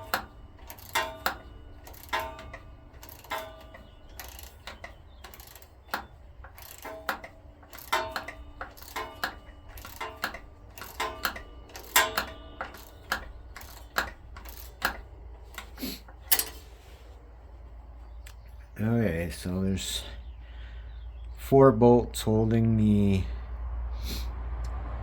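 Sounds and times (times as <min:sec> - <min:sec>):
metal hand tools clinking: 0:00.0 - 0:16.7.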